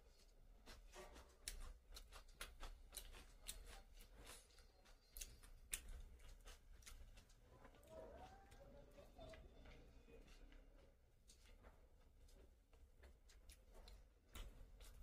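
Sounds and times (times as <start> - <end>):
person chewing food: 0.0 - 15.0
soft mouth clicks and smacks: 0.2 - 8.7, 11.2 - 15.0.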